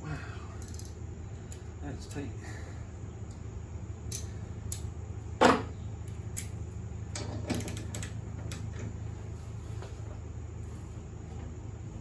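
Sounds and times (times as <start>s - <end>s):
steady low hum: 0.0s - 12.0s
wrench clicking and tapping metal: 0.6s - 1.0s.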